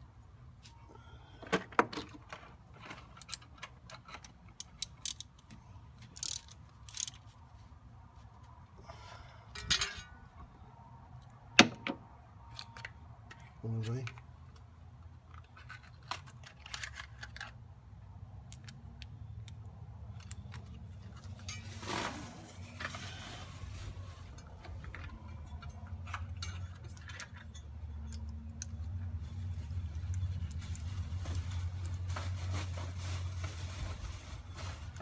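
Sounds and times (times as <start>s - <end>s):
hand tools clinking on metal: 24.9s - 28.3s.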